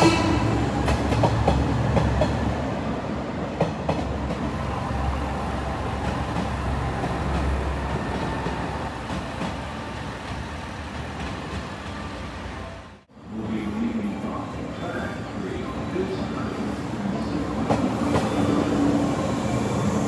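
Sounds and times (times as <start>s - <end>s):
electric trains rumbling: 0.0s - 20.0s.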